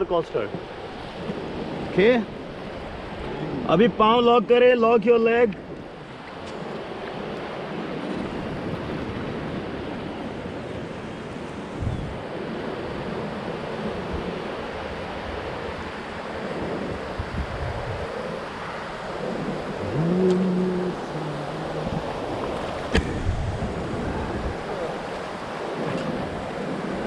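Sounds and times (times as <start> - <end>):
wind buffeting microphone: 0.0 - 27.0
river current rushing: 5.8 - 27.0
brief voice call: 19.8 - 22.2
sharp knock: 22.9 - 23.3.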